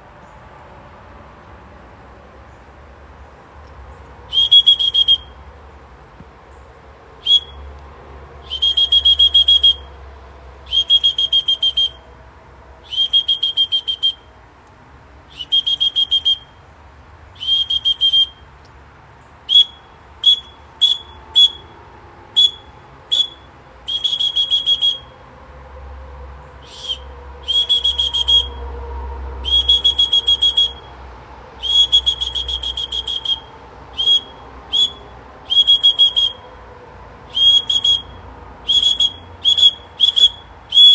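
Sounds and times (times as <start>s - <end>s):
bird-call whistle trilling: 4.3s - 5.4s, 7.2s - 7.7s, 8.4s - 10.0s, 10.7s - 12.1s, 12.8s - 14.3s, 15.3s - 16.6s, 17.4s - 18.5s, 19.2s - 25.2s, 26.6s - 28.7s, 29.4s - 31.0s, 31.6s - 36.6s, 37.3s - 40.9s.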